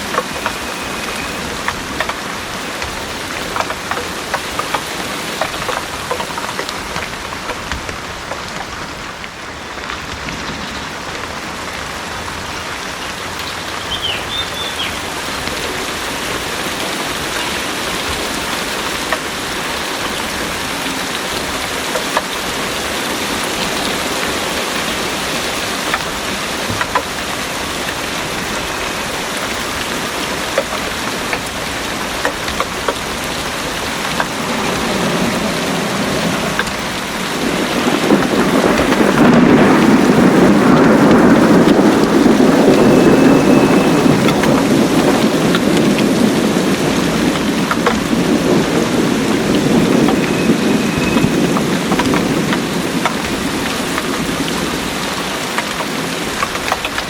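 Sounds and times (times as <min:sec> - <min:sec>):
heavy rain pouring: 0:00.0 - 0:57.0
low rumble of thunder: 0:23.2 - 0:55.5.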